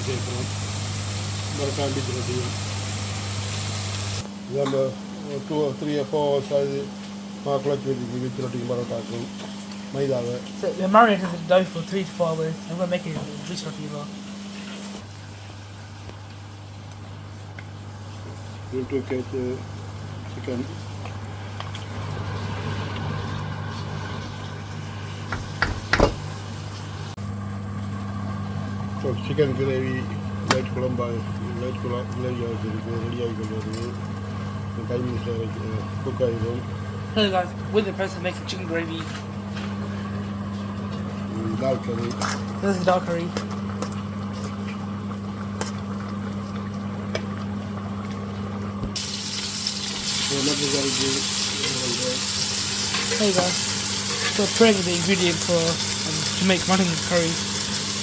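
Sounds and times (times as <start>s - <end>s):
food sizzling in a pan: 0.0s - 4.3s, 49.0s - 58.0s
low mechanical hum: 0.0s - 58.0s
short knocks: 25.3s - 26.4s.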